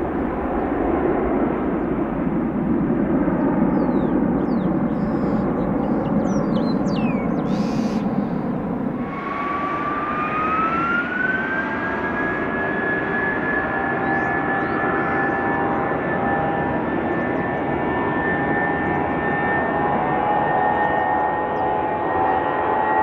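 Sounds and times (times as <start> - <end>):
rising turbine whine: 0.0 - 17.3
aircraft turbine engines roaring: 0.0 - 23.0.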